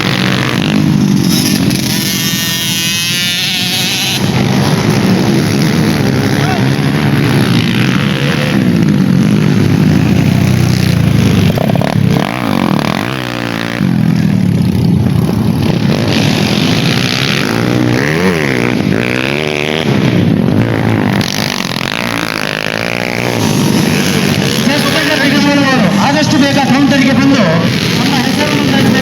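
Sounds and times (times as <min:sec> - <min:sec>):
dirt bike engines revving: 0:00.0 - 0:29.0.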